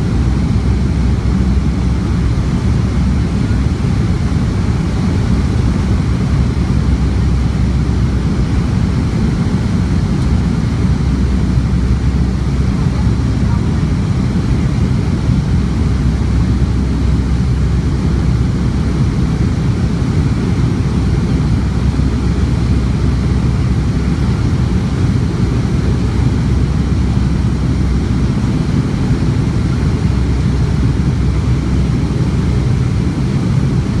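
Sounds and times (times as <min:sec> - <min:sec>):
jet engine rumble in cabin: 0:00.0 - 0:34.0.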